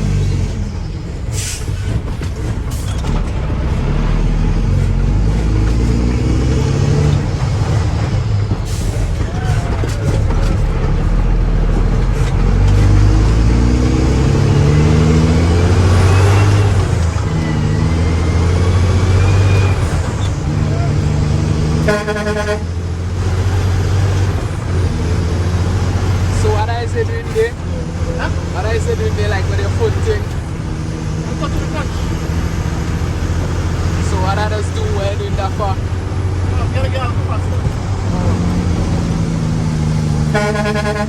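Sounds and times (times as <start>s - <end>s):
diesel truck engine revving: 0.0s - 41.0s
air brake hiss: 1.3s - 1.8s.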